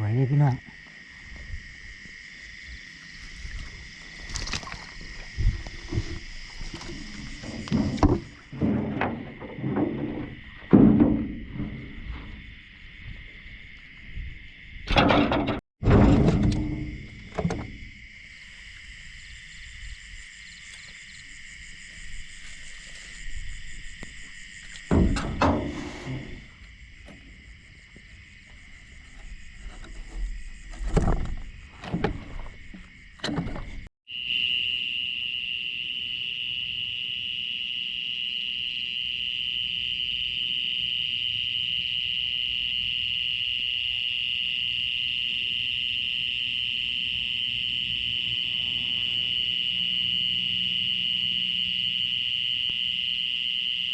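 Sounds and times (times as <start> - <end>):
crickets chirring: 0.0 - 53.9
paddled boat knocks and splashes: 3.6 - 12.5, 28.5 - 33.9.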